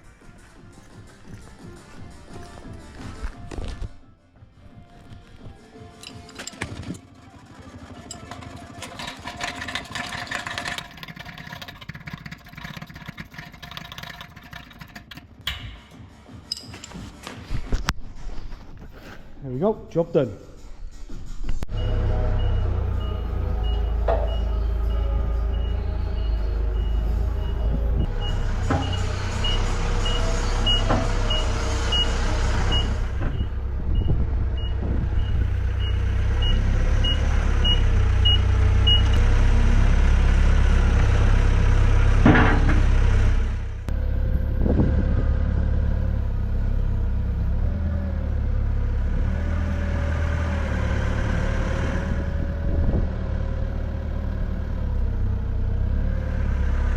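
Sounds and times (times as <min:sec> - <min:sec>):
vehicle engine running: 0:06.8 - 0:16.2, 0:21.7 - 0:56.9
reversing alarm beeping: 0:21.7 - 0:39.2
clunk: 0:23.7 - 0:24.6, 0:28.0 - 0:34.1, 0:42.2 - 0:43.0.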